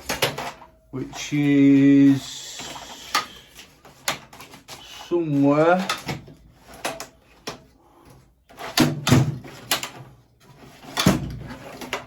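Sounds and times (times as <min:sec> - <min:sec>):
tools knocking and clattering: 0:00.0 - 0:01.4, 0:02.6 - 0:07.7, 0:08.5 - 0:12.0.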